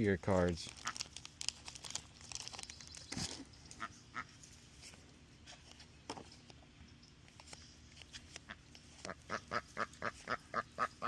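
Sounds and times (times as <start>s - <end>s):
waterfowl calling: 8.4s - 11.0s.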